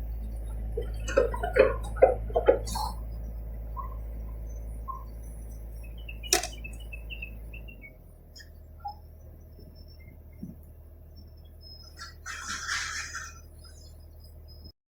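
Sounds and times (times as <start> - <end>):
low steady hum: 0.0 - 14.7
sharp click: 6.3 - 6.6.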